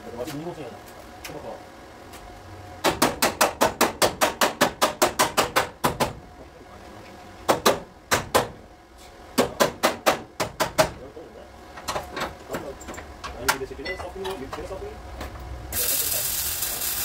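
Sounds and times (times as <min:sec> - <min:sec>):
hammer tapping car body panel: 0:02.8 - 0:06.2, 0:07.5 - 0:08.6, 0:09.4 - 0:11.0.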